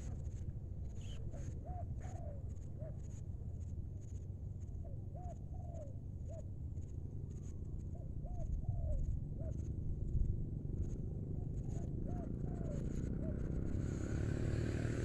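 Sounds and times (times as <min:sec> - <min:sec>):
low background rumble: 0:00.0 - 0:13.8
dove cooing: 0:01.1 - 0:02.9, 0:07.9 - 0:09.6, 0:11.4 - 0:13.6.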